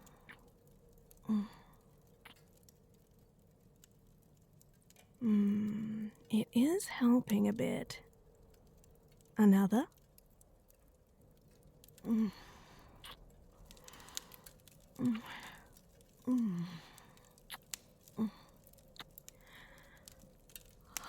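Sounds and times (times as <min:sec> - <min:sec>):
woman humming: 0:05.2 - 0:06.1, 0:12.0 - 0:12.4, 0:16.3 - 0:16.8.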